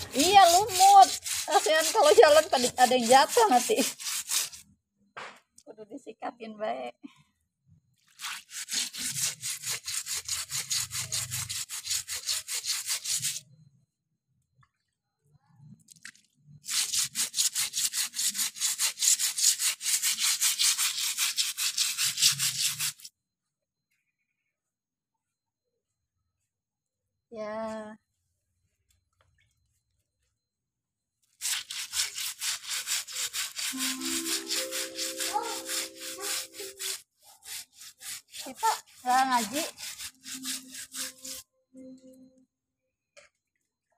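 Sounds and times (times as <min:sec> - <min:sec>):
stiff brush scrubbing: 0:00.0 - 0:04.7, 0:08.0 - 0:13.4, 0:16.6 - 0:23.1, 0:31.3 - 0:41.4.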